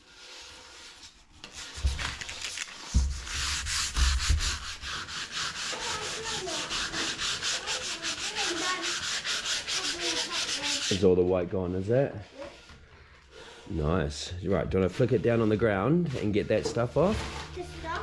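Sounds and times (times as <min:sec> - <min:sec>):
sandpaper rubbing on wood: 0:02.7 - 0:11.1, 0:14.8 - 0:18.0.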